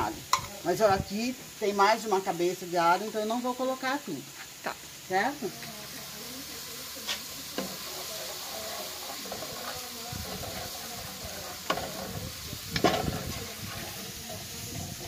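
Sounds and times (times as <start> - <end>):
onion and garlic sizzling in oil: 0.0 - 15.0
wooden spoon scraping pan: 7.1 - 14.2.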